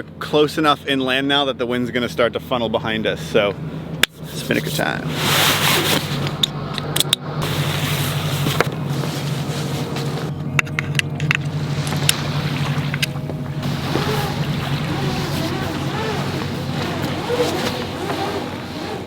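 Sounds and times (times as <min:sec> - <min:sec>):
low mechanical hum: 0:00.0 - 0:19.0
deck hardware clicking and clinking: 0:06.1 - 0:19.0.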